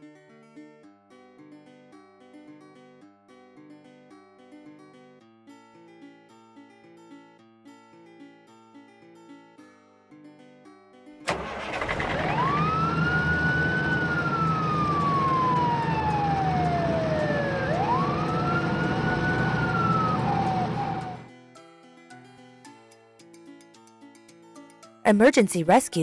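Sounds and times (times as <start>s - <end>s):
soft guitar music: 0.0s - 11.3s, 12.1s - 26.0s
engine running: 11.3s - 21.3s
fire engine siren wailing: 11.3s - 21.3s.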